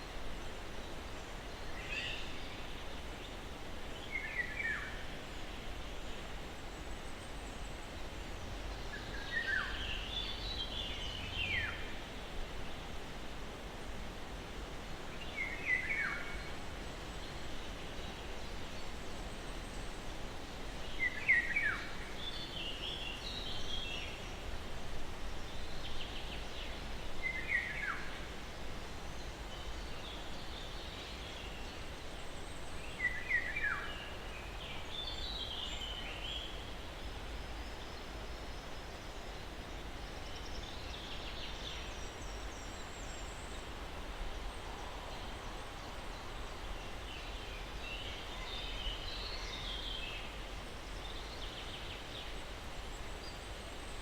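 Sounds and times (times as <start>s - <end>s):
soft breeze: 0.0s - 54.0s.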